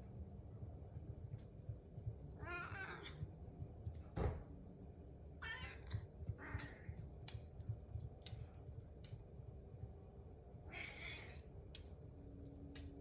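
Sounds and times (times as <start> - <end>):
cats meowing: 2.4 - 3.2, 10.7 - 11.5.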